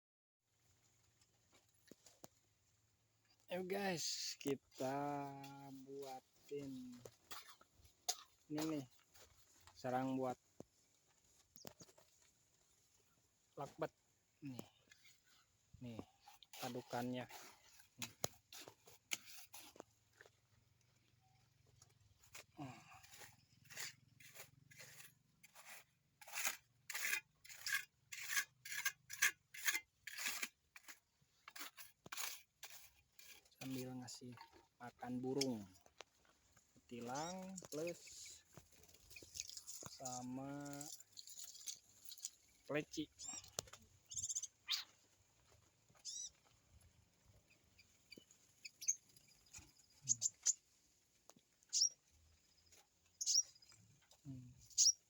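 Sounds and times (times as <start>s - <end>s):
hand tool rasping wood: 22.3s - 33.9s
small songbirds chirping: 37.0s - 40.2s, 40.8s - 45.0s, 45.9s - 46.4s, 47.4s - 50.9s, 51.6s - 55.0s.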